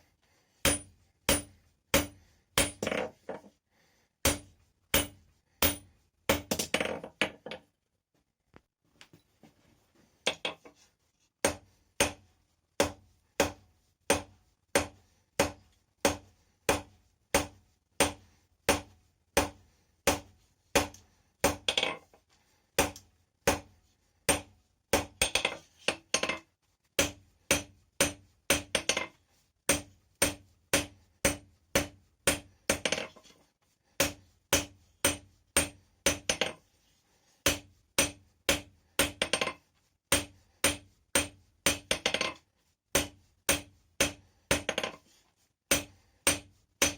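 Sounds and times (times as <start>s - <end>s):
hammer striking steel on anvil: 0.6s - 2.9s, 4.2s - 6.7s, 27.0s - 29.0s, 29.7s - 33.0s, 34.0s - 36.5s, 37.5s - 39.5s, 40.1s - 42.2s, 43.0s - 44.9s, 45.7s - 46.9s.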